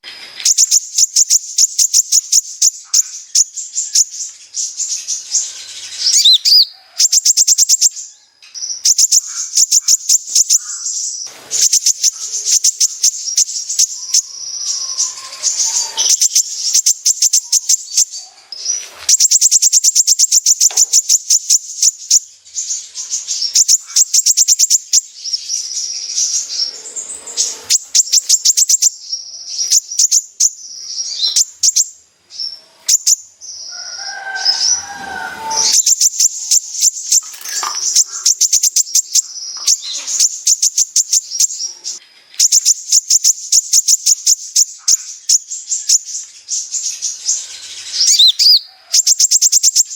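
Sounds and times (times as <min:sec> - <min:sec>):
sunbird singing fast trills: 0:00.0 - 0:49.9.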